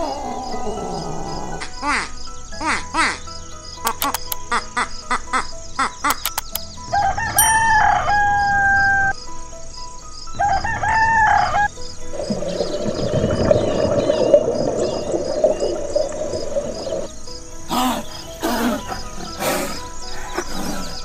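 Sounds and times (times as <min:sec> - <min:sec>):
rooster crowing: 0:06.9 - 0:09.2, 0:10.4 - 0:11.7.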